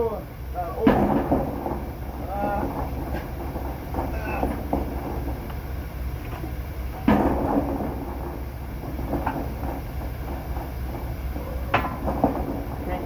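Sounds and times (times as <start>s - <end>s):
low hum: 0.0s - 13.0s
metal plate clanking: 0.8s - 13.0s.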